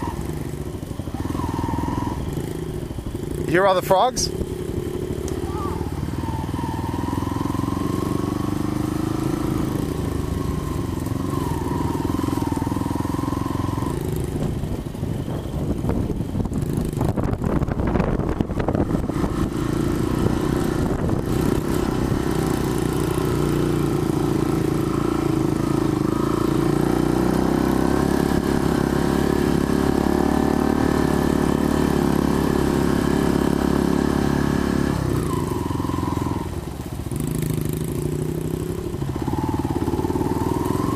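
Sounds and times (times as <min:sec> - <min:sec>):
off-road motorbike engine: 0:00.0 - 0:40.9.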